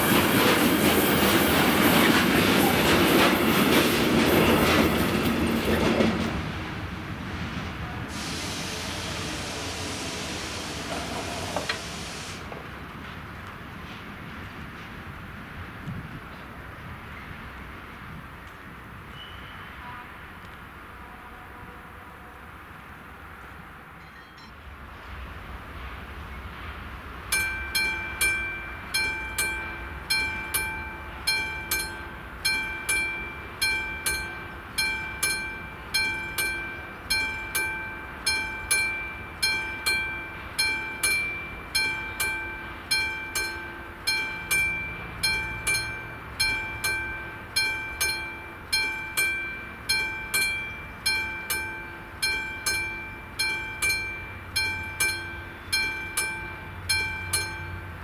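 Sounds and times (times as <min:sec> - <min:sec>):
level crossing warning bell: 0:27.2 - 0:58.0.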